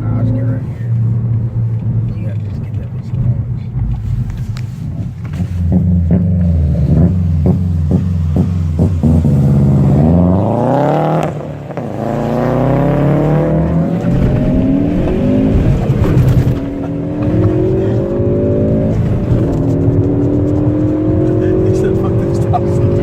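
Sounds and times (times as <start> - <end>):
car engine accelerating hard: 0.0 - 23.0.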